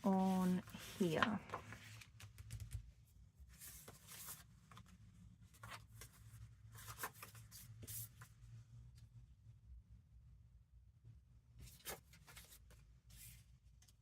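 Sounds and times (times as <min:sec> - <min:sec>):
paper rustling: 0:00.0 - 0:02.8, 0:03.5 - 0:08.3, 0:11.6 - 0:14.0.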